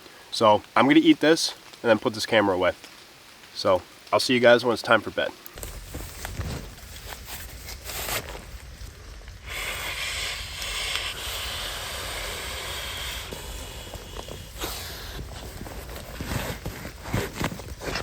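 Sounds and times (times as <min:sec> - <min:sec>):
rain falling: 0:00.0 - 0:18.0
knocks and rustles: 0:05.6 - 0:08.9, 0:14.1 - 0:18.0.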